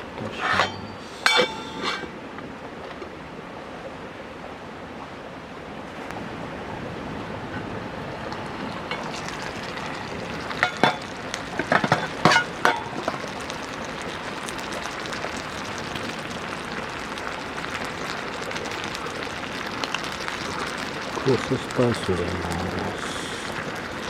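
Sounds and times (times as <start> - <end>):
food sizzling in a pan: 0.3 - 2.2, 8.7 - 24.0
utensil clinking against pan: 0.3 - 2.2, 10.6 - 11.1, 11.7 - 13.2.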